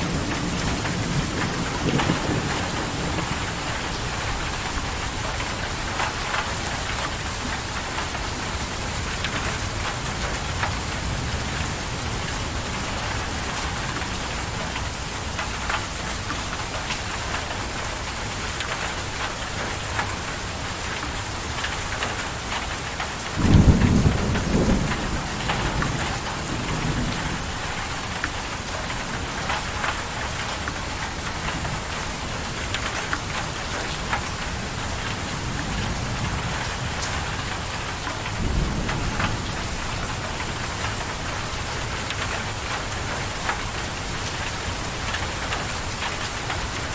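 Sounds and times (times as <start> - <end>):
thunder rumble: 0.0 - 5.4, 23.4 - 28.2, 34.6 - 42.5
raindrops ticking: 0.0 - 46.9
steady rain: 0.0 - 46.9.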